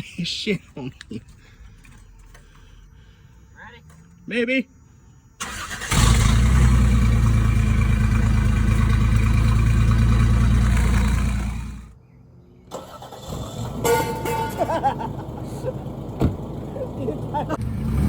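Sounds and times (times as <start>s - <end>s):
truck engine idling: 5.4s - 11.9s, 12.7s - 17.6s.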